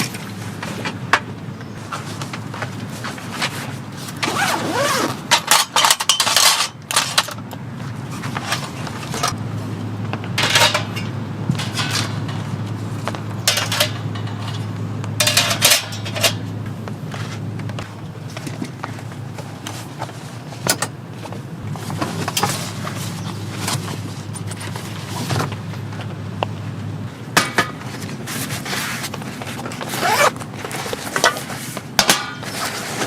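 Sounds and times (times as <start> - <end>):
metal cookware clinking: 13.4 - 16.5.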